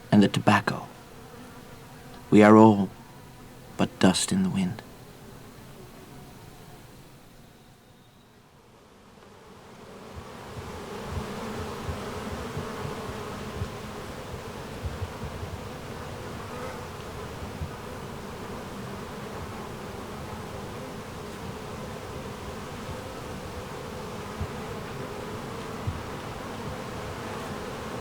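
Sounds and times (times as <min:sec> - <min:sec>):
buzzing hum: 0:09.4 - 0:28.0.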